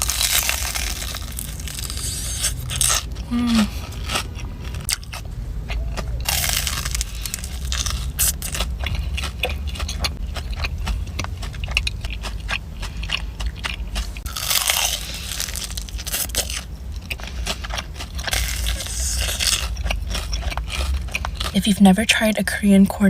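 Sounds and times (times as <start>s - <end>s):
crunchy biting and chewing: 0.0s - 21.7s.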